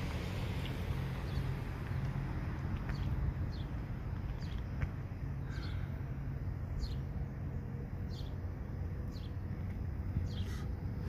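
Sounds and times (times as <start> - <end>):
bird chirping: 6.8 - 7.1, 8.1 - 8.4, 9.1 - 9.4, 10.2 - 10.7.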